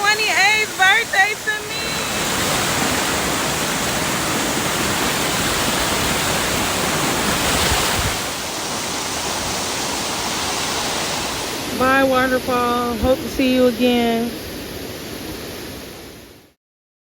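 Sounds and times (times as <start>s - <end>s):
waterfall pouring: 0.1s - 12.8s.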